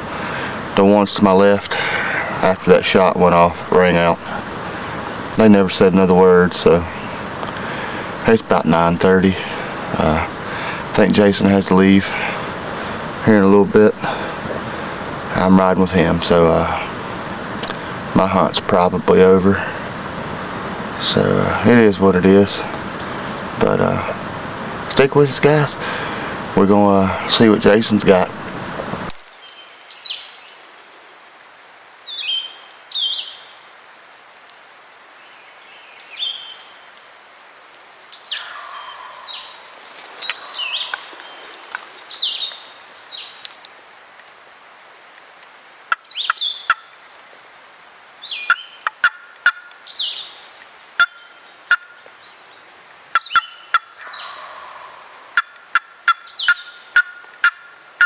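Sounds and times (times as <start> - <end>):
songbirds chirping: 0.0 - 58.0
wild turkey gobbling: 1.2 - 29.0, 38.3 - 39.4, 48.4 - 49.7, 51.0 - 52.0, 53.1 - 57.8.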